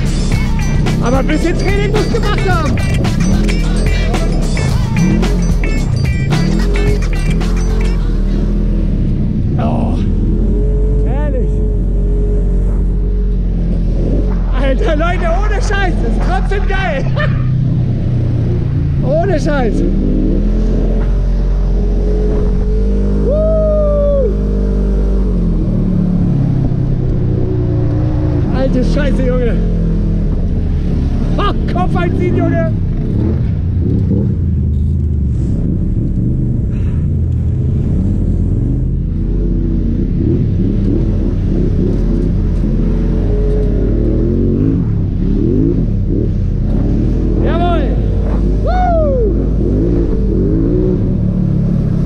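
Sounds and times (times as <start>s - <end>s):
high pitched call or tone: 0.0s - 8.6s
engine running steadily: 0.0s - 52.0s.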